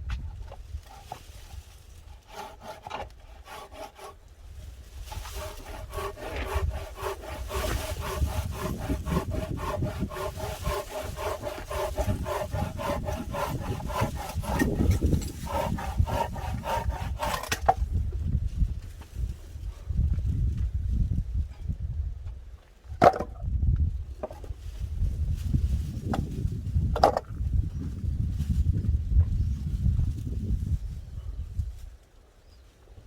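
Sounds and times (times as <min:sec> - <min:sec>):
hand saw cutting wood: 0:00.8 - 0:04.2, 0:05.0 - 0:17.8.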